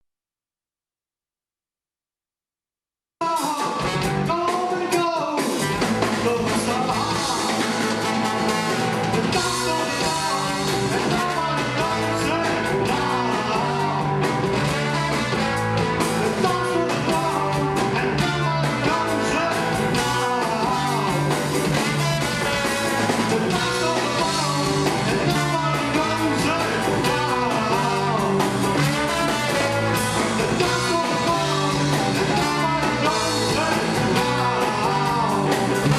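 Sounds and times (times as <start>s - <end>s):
drums: 3.2s - 35.9s
rock band music: 3.2s - 35.9s
electric guitar: 5.4s - 35.9s.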